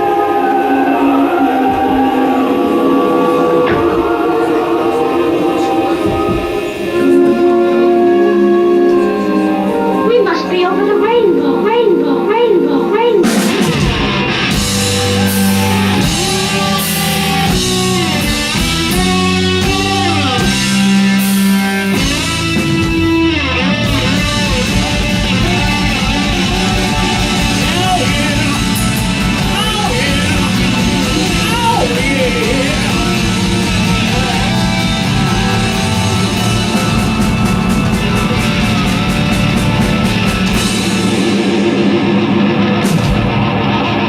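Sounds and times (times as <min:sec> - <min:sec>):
electric guitar riffing: 0:00.0 - 0:44.0
fast steady drum beat: 0:13.2 - 0:43.5
hard rock band playing live: 0:13.2 - 0:44.0.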